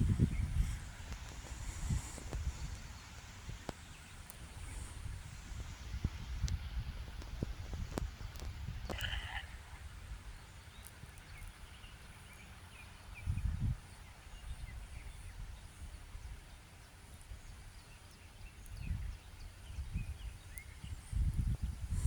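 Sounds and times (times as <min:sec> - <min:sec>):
wind rumbling on microphone: 0:00.0 - 0:22.0
faint bird chirps: 0:08.0 - 0:22.0.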